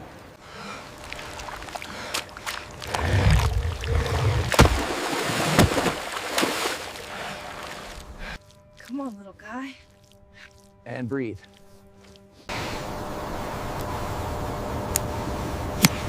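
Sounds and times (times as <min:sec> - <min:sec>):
water splashing and churning: 0:00.0 - 0:09.1.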